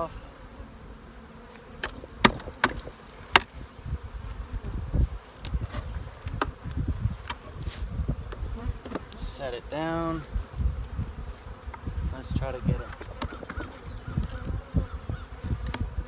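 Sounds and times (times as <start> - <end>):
bees buzzing: 0.0 - 16.0
wooden hive box knocks: 1.8 - 3.6, 8.2 - 9.2, 12.8 - 14.5.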